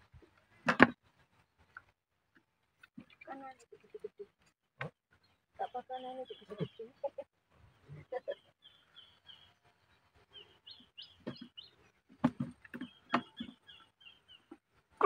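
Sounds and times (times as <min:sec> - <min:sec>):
small bird chirping: 0:05.1 - 0:14.6.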